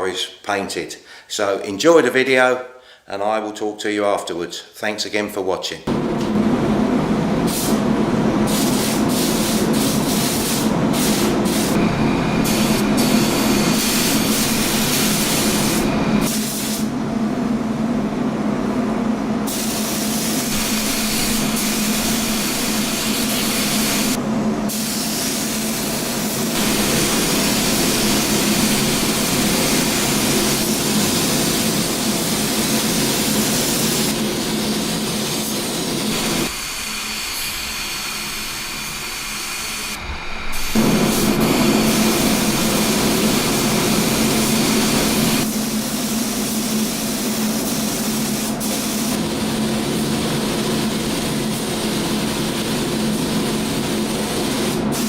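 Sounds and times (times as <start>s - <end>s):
spray booth low hum: 5.9s - 55.0s
spray gun hissing: 7.5s - 7.8s, 8.5s - 16.9s, 19.5s - 50.1s, 50.9s - 55.0s.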